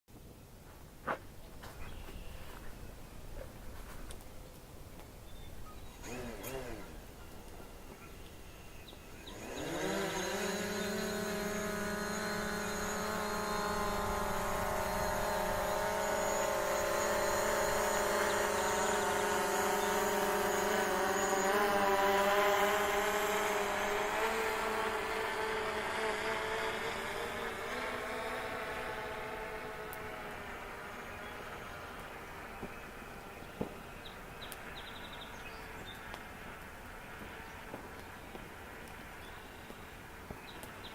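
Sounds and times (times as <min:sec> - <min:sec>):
drone propellers buzzing whine: 0:01.0 - 0:40.9.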